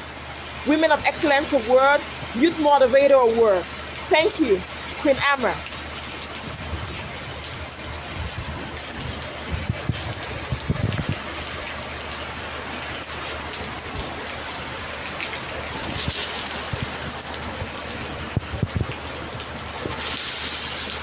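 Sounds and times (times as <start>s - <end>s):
heavy rain downpour: 0.0s - 21.0s.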